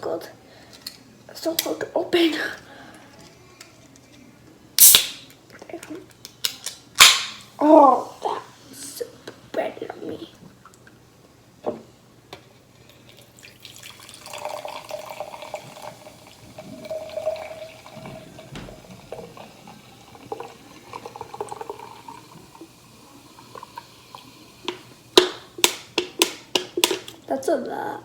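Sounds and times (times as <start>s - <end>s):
soda pouring into a cup: 12.8s - 27.1s.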